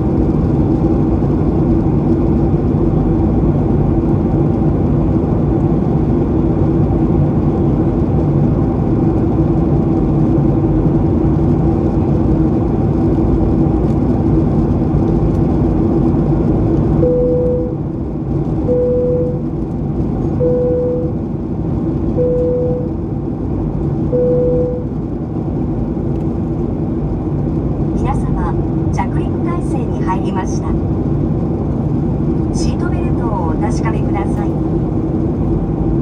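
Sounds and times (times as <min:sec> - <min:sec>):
airplane cabin drone: 0:00.0 - 0:36.0
short clear tone: 0:22.2 - 0:22.9, 0:24.2 - 0:24.9.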